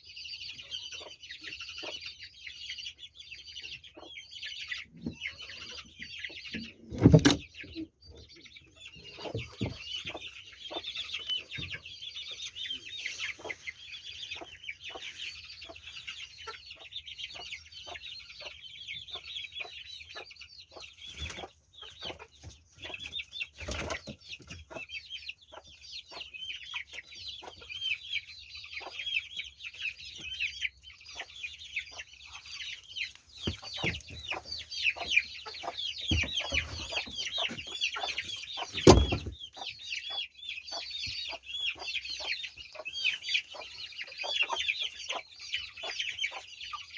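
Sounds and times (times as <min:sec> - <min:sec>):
chickens clucking: 0:00.0 - 0:46.9
high-pitched chirping of flock: 0:00.0 - 0:46.9
louder knocks: 0:38.8 - 0:39.3.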